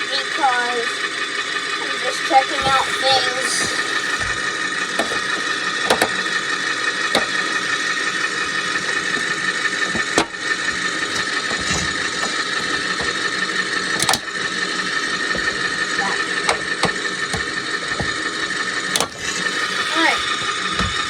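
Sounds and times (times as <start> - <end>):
steady whine: 0.1 - 21.0
truck engine idling: 0.3 - 21.0
sharp clicks and knocks: 2.5 - 7.9, 8.7 - 14.5, 15.2 - 21.0.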